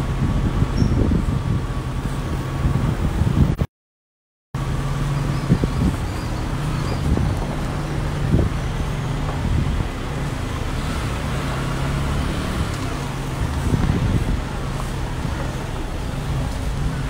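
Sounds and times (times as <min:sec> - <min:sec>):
vehicle engine running: 0:04.6 - 0:17.0.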